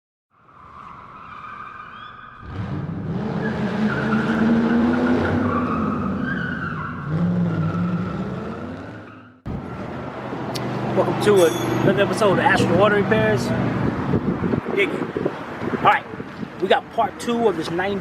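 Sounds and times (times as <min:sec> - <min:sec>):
car engine revving: 0:02.4 - 0:11.1
tyres squealing: 0:11.2 - 0:13.1.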